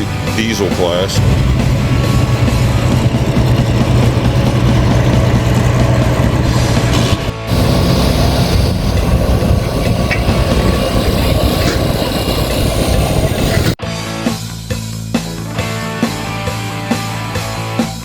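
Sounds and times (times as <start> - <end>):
diesel truck engine running: 0.0 - 13.8.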